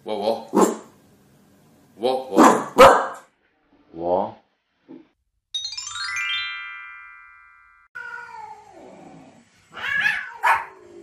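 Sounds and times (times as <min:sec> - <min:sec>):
chiming tone: 0:05.6 - 0:08.0
pet animal crying: 0:09.7 - 0:11.0.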